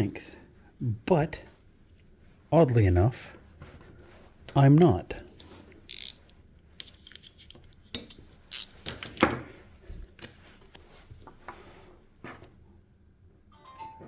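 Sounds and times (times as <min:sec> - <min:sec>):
metal parts and tools clinking: 0:05.9 - 0:06.3.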